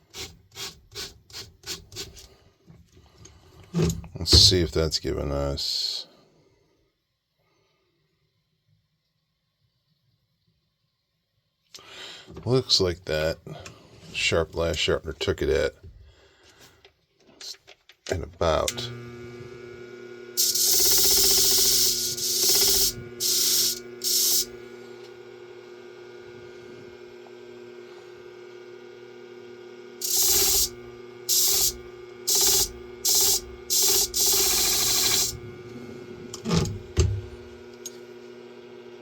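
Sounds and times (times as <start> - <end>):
machine motor humming: 18.7 - 39.0
blade grinding on hone: 20.4 - 24.6, 30.0 - 35.6.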